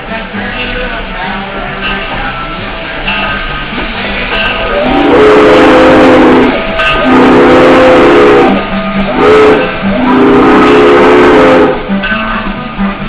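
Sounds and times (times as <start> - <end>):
faint guitar music: 0.0 - 13.0
steam locomotive whistle blasts: 4.3 - 12.6.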